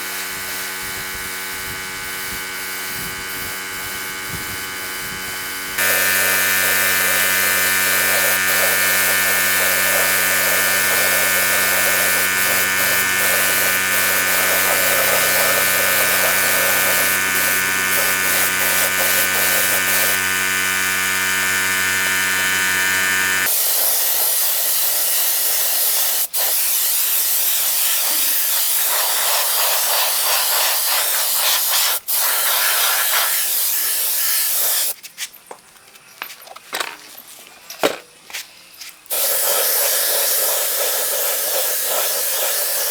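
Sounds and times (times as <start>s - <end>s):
power tool motor whining: 1.8s - 23.6s
spraying hiss: 5.8s - 20.2s, 23.4s - 35.0s, 39.1s - 42.9s.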